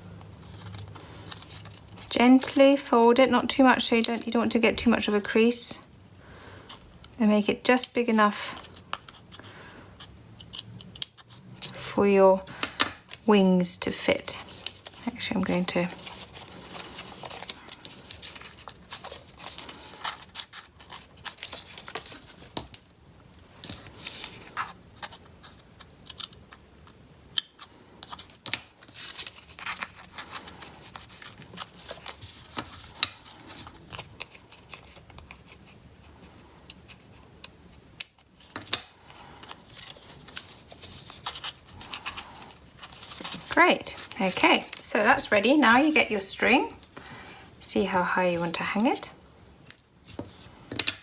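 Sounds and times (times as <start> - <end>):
paper rustling and crinkling: 0.2 - 2.6, 12.4 - 26.4, 27.6 - 47.6.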